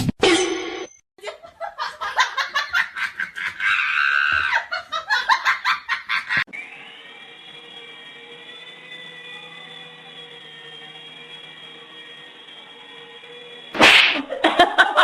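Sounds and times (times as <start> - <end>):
person laughing hard: 1.2 - 6.4, 14.2 - 15.0.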